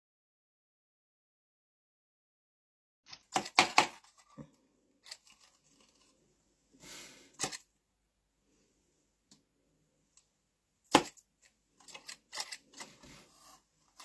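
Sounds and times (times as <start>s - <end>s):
paper rustle: 5.0s - 6.2s.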